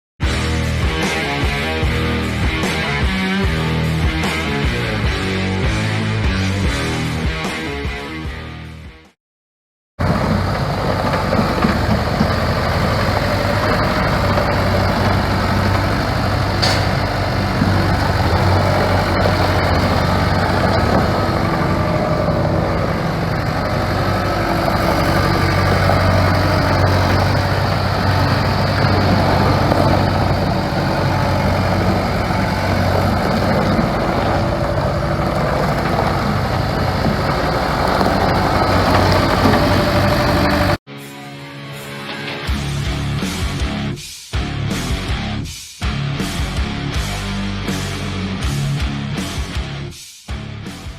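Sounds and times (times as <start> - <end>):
skid steer engine running: 10.0 - 40.8.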